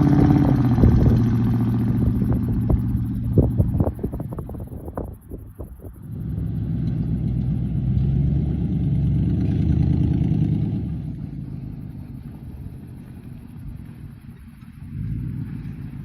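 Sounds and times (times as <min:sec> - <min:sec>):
vehicle exhaust rumble: 0:00.0 - 0:16.0.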